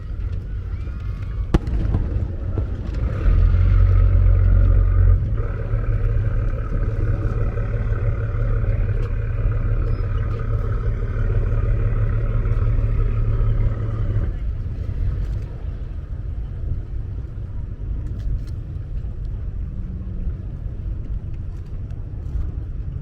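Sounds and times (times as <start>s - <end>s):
steady low hum: 0.0s - 23.0s
fireworks crack: 1.2s - 4.3s
fireworks booms: 1.4s - 3.5s.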